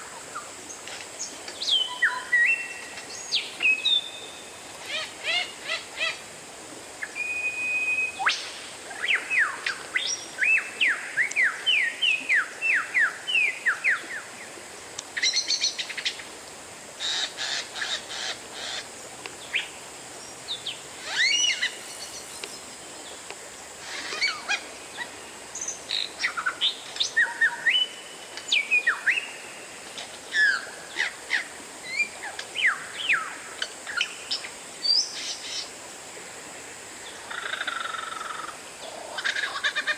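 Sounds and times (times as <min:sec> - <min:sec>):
bird singing whistled notes: 0:01.6 - 0:04.5, 0:07.0 - 0:13.8, 0:20.6 - 0:22.6.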